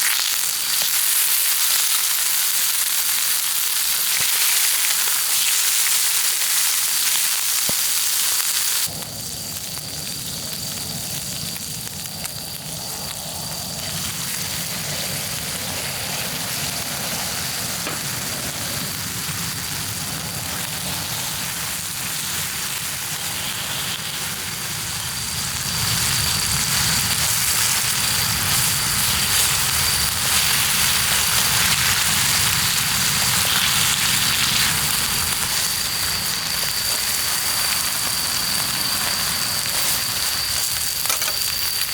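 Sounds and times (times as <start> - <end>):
food sizzling: 0.0 - 41.9
fire burning: 2.3 - 41.9
rain hissing: 7.8 - 41.9.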